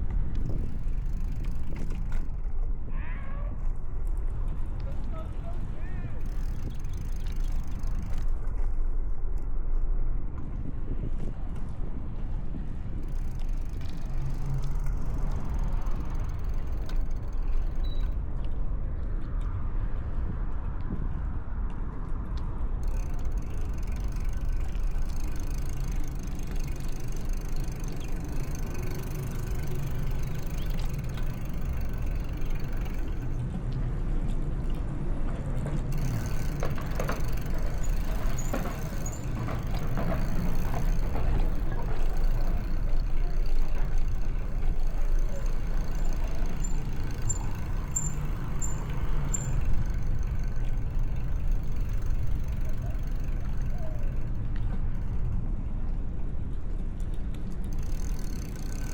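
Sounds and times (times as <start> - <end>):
wind on microphone: 0.0 - 4.8
street traffic rumble: 0.0 - 58.9.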